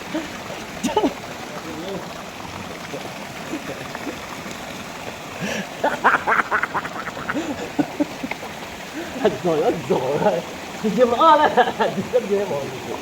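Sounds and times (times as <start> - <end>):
river water rushing: 0.0 - 13.0
rapid cackling: 5.8 - 8.5.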